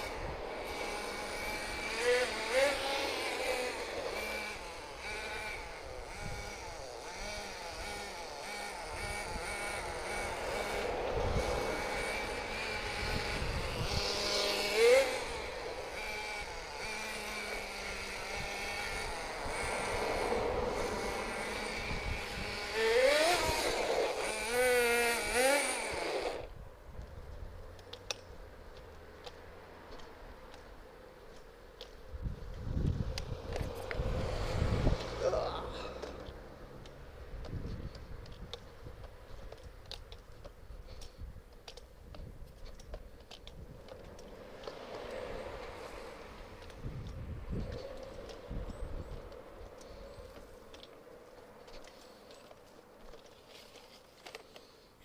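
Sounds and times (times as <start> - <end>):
small nitro engine revving: 0.0 - 26.6, 32.3 - 38.1, 43.9 - 50.4.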